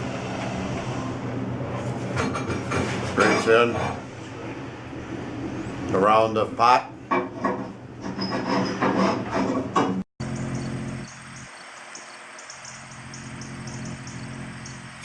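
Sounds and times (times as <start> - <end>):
light regular ticking: 10.3 - 15.0.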